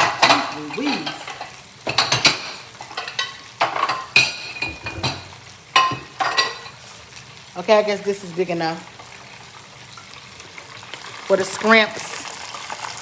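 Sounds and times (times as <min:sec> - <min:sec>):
dishes and utensils clattering: 0:00.0 - 0:06.8
shrimp sizzling in frying oil: 0:00.0 - 0:13.0.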